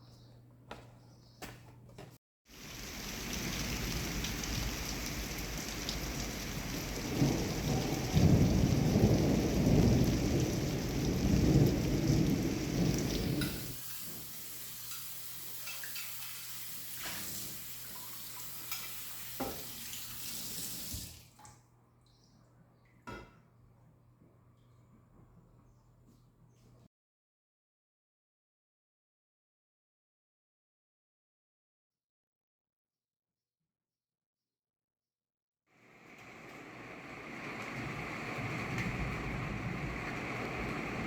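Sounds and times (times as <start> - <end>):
steady rain falling: 2.5 - 15.5, 35.8 - 41.0
water dripping: 2.5 - 23.5
deep rumble of thunder: 3.4 - 13.8, 37.5 - 41.0.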